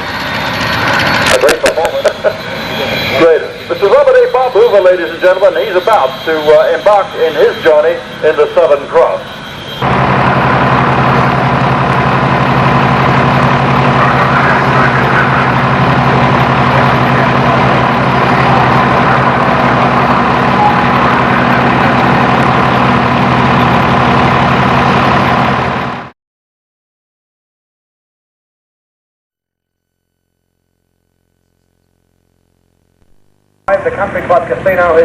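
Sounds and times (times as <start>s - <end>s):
aircraft engine running: 0.0s - 26.2s, 30.6s - 35.0s.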